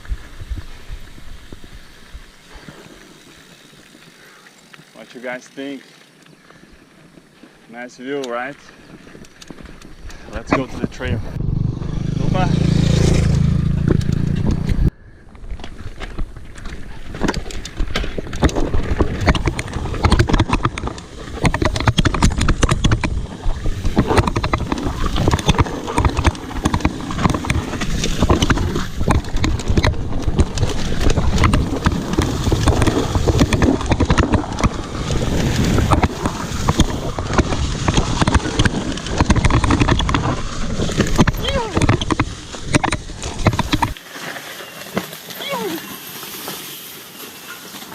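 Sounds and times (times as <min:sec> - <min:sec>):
bike rattling: 0:00.0 - 0:47.9
bike tyres rumbling over dirt: 0:00.0 - 0:47.9
wind buffeting microphone: 0:08.9 - 0:44.0.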